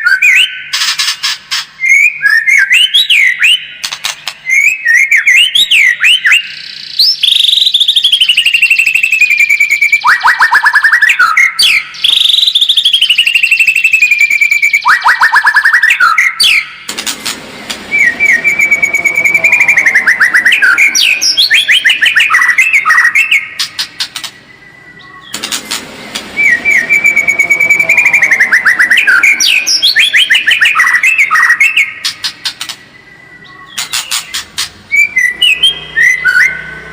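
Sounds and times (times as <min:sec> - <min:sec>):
bird singing trills and whistles: 0:00.0 - 0:16.9, 0:17.9 - 0:25.6, 0:26.4 - 0:36.8.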